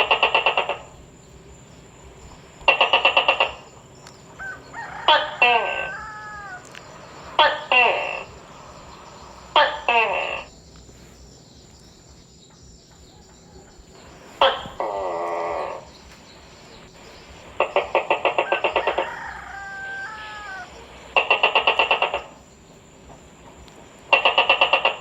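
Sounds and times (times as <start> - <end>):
gecko buzzy call: 0.0 - 1.1, 2.4 - 10.5, 14.2 - 22.4, 24.1 - 25.0
gecko rapid chattering: 0.0 - 1.1, 2.2 - 10.5, 14.2 - 22.5, 24.1 - 25.0.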